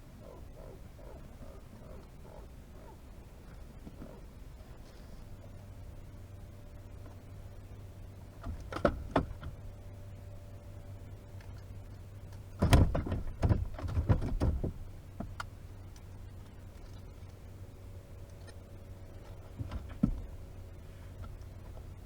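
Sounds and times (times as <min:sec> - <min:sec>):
steady low hum: 0:00.0 - 0:22.0
knocking and rattling in a boat: 0:08.4 - 0:09.6, 0:12.4 - 0:15.5, 0:19.2 - 0:22.0.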